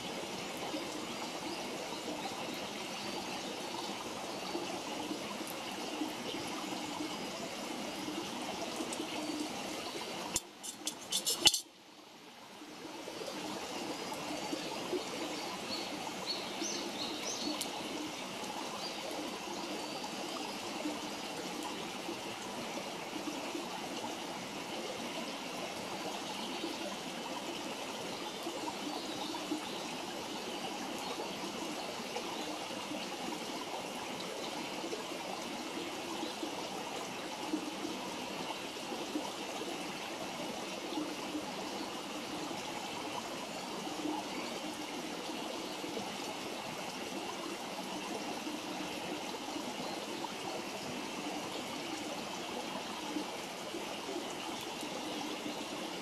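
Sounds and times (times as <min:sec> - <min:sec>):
campfire hissing: 0:07.6 - 0:11.6.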